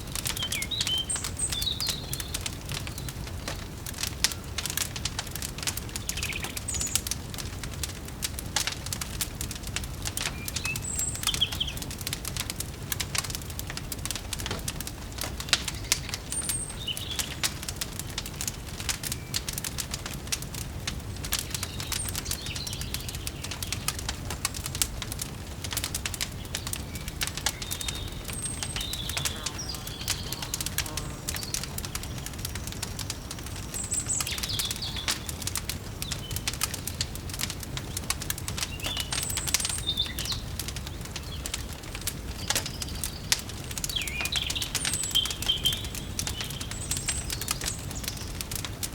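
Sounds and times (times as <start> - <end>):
wood fire crackling: 0.0 - 48.9
bird chirps: 0.3 - 3.6, 6.0 - 7.1, 10.3 - 11.8, 26.5 - 37.0, 38.7 - 40.5, 43.9 - 48.3.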